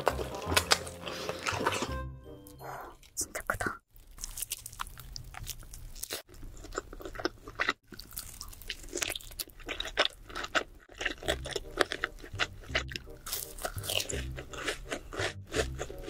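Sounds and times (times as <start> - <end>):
person chewing food: 0.0 - 3.2, 4.0 - 16.0.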